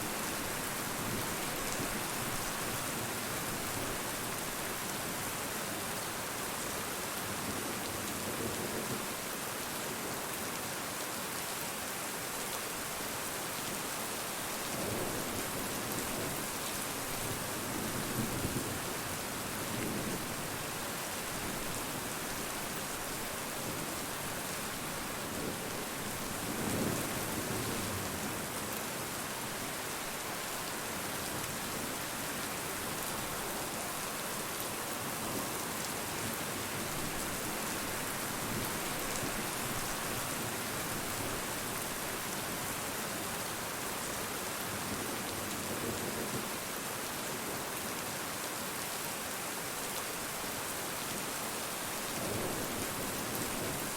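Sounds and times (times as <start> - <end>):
heavy rain pattering: 51.9 - 53.9.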